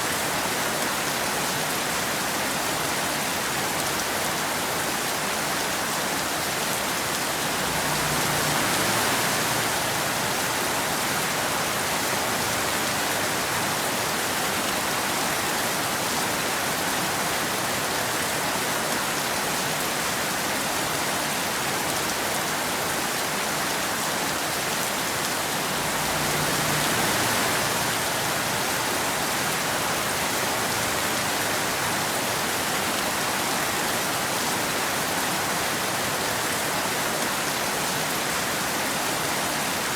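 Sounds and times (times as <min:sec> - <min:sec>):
rain falling on road and trees: 0:00.0 - 0:39.9.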